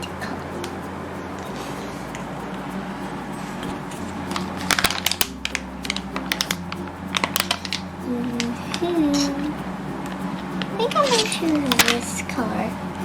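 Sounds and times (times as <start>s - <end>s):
pens clicking and clattering: 4.6s - 6.6s.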